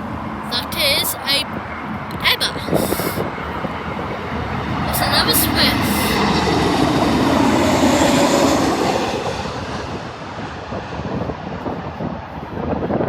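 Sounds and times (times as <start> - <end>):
jet airliner passing: 3.2 - 13.0.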